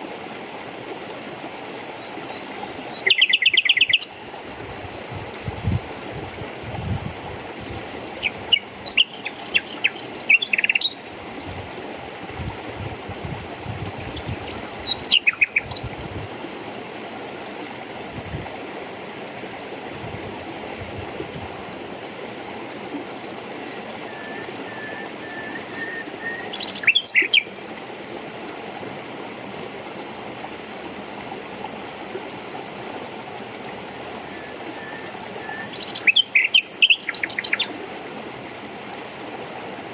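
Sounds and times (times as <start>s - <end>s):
flowing water: 0.0s - 39.9s
birds chirping: 8.0s - 11.0s, 13.6s - 15.9s, 24.1s - 27.6s, 34.4s - 37.8s.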